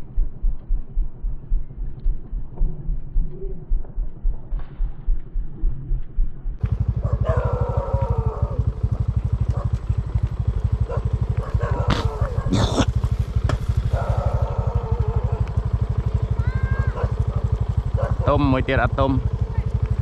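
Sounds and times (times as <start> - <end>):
small motorcycle engine chugging: 6.6 - 20.0.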